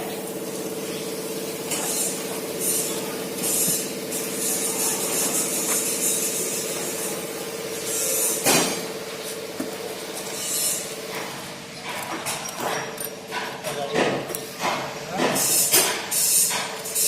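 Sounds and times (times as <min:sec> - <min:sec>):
machine humming: 0:00.0 - 0:11.9.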